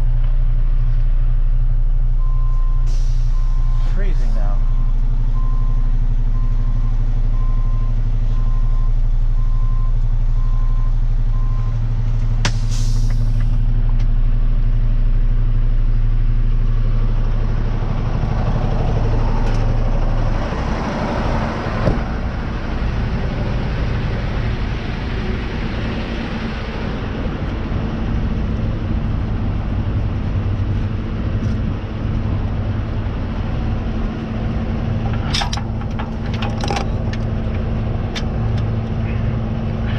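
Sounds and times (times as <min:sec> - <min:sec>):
truck engine running: 0:00.0 - 0:39.9
short sharp air hiss: 0:02.9 - 0:03.4, 0:12.5 - 0:13.4.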